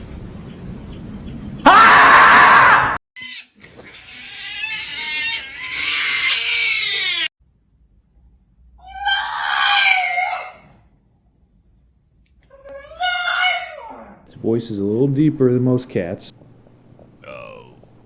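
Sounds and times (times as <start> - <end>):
animal screaming: 1.6 - 7.3, 8.8 - 10.8, 12.7 - 14.2.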